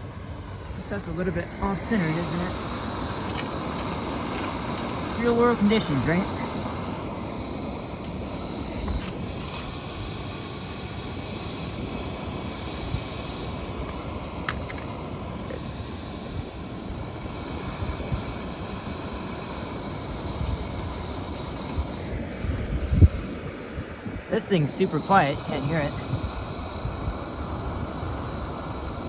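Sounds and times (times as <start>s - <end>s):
camping stoves hissing: 0.0s - 29.0s
wind buffeting microphone: 17.2s - 28.2s.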